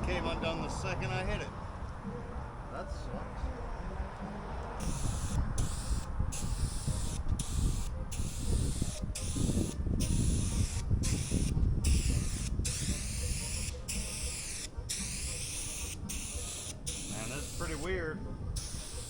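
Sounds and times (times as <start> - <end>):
spray paint can hissing: 4.8 - 17.9, 18.6 - 19.0.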